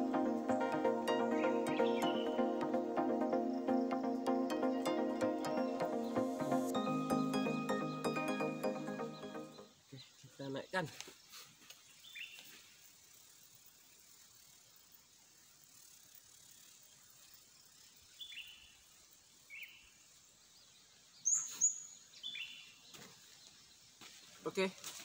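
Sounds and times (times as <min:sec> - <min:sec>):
high-pitched bird calls: 0:00.0 - 0:02.9
faint steady hiss: 0:09.2 - 0:25.0.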